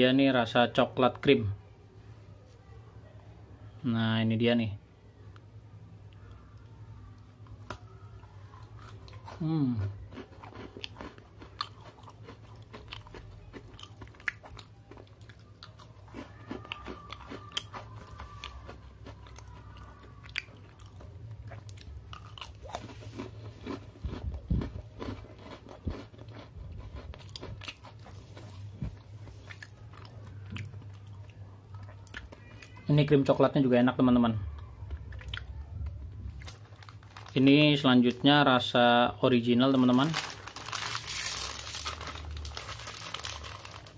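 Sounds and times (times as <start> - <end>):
cookie crunching: 6.2 - 33.2, 34.6 - 38.5, 39.3 - 43.9.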